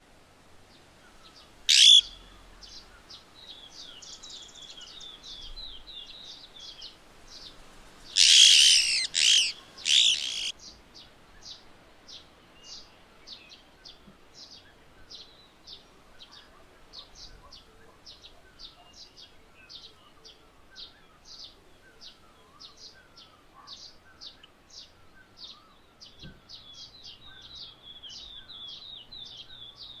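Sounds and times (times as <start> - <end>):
high bird chips and trills: 1.7 - 2.2, 8.2 - 10.5
parakeet shrill calls: 1.7 - 2.2, 8.2 - 10.5.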